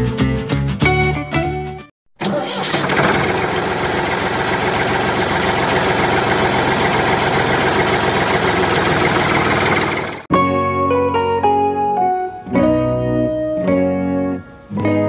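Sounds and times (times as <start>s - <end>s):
tractor engine idling: 2.2s - 10.3s.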